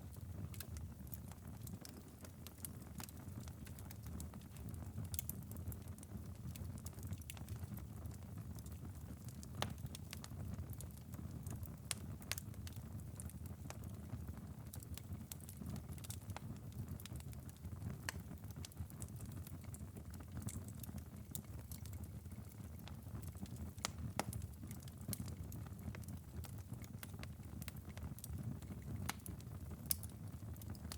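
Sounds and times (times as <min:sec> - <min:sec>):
fire crackling and popping: 0:00.0 - 0:30.9
low fire rumble: 0:00.0 - 0:30.9.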